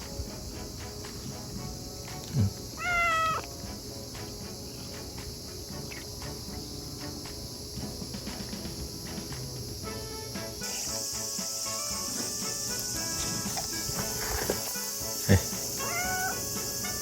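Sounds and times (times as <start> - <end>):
cat meowing: 2.8 - 3.5, 15.8 - 16.4.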